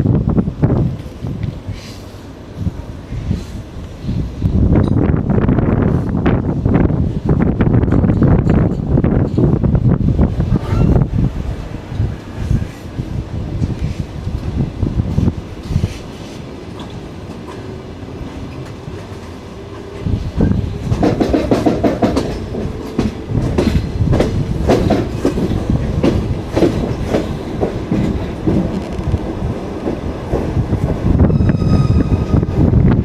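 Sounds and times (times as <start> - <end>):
train wheels clattering on rails: 7.3 - 11.2, 11.8 - 33.0
high-pitched wheel squeal: 10.5 - 11.1, 31.2 - 32.5.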